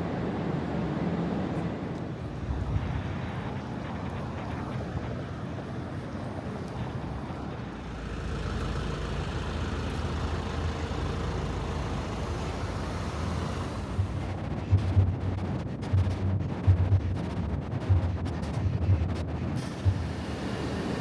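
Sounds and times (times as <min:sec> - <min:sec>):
low engine rumble: 0:07.0 - 0:21.0
road traffic hum: 0:07.2 - 0:21.0.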